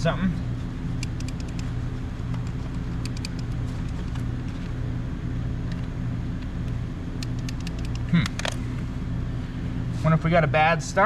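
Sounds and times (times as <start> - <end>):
starter clicks: 1.0 - 4.8, 5.7 - 8.6.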